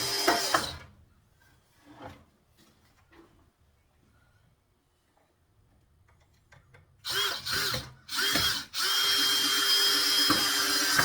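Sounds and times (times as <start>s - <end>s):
power drill driving a screw: 0.0s - 0.8s, 7.0s - 11.0s.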